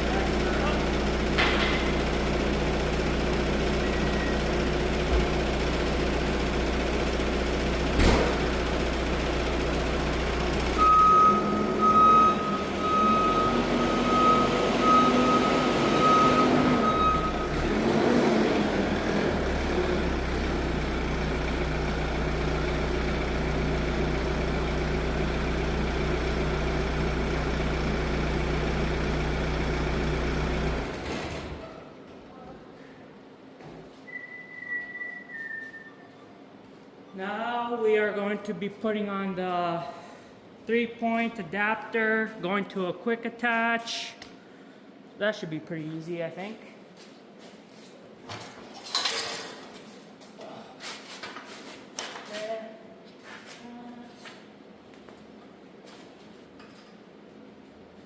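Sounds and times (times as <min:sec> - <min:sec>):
tractor engine running: 0:00.0 - 0:31.6.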